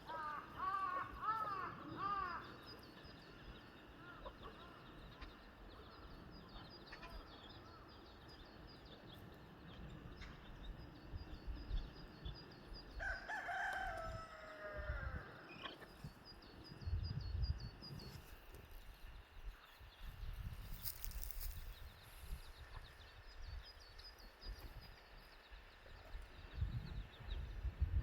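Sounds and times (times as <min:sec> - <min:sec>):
rooster crowing: 0:13.0 - 0:15.4.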